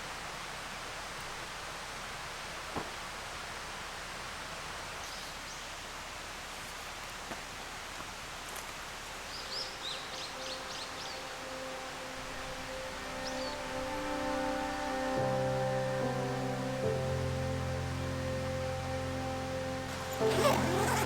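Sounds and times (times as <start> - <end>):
rain falling in woodland: 0.0 - 21.0
bird chirping: 9.3 - 21.0.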